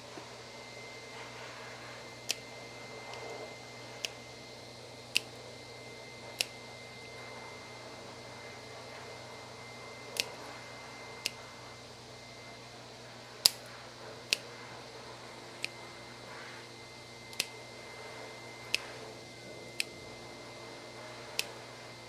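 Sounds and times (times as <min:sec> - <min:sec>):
steady hum: 0:00.0 - 0:22.0
nail clippers clicking: 0:02.2 - 0:02.4, 0:03.1 - 0:03.4, 0:04.0 - 0:04.2, 0:05.1 - 0:05.4, 0:06.4 - 0:06.6, 0:10.2 - 0:10.5, 0:11.2 - 0:11.4, 0:13.4 - 0:13.7, 0:14.3 - 0:14.5, 0:17.3 - 0:17.6, 0:18.7 - 0:18.9, 0:19.8 - 0:20.0.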